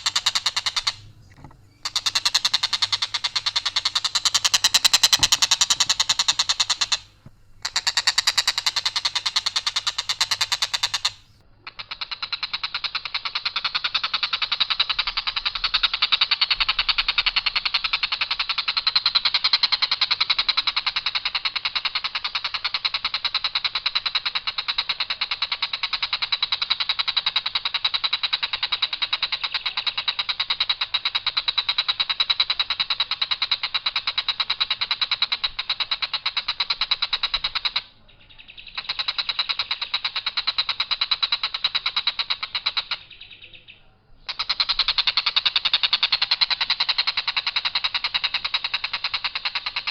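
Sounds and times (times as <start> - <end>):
kingfisher rasping call: 0.0 - 38.0, 44.2 - 49.9.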